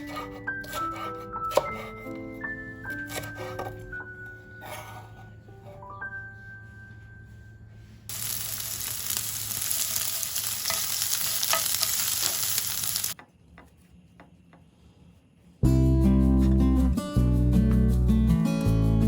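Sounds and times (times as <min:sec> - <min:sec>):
food sizzling in frying pan: 0:08.1 - 0:13.2.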